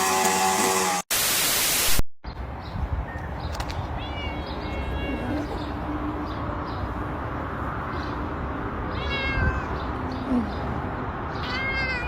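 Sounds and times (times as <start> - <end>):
cat meowing: 4.0 - 5.7, 8.9 - 9.8, 11.4 - 12.0.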